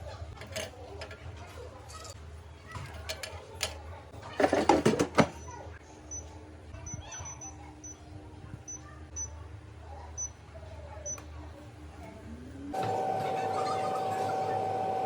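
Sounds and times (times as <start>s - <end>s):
air fryer basket rattling: 0.0s - 5.5s.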